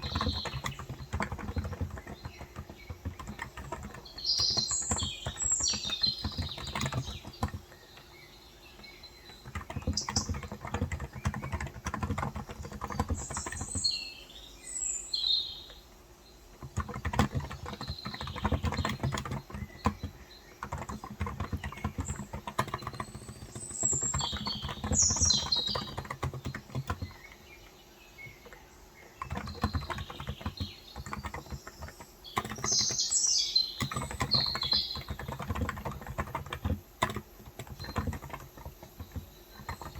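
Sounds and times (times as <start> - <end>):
typing on a keyboard: 0.0 - 14.2, 15.6 - 39.9
small birds chirping: 0.0 - 39.9.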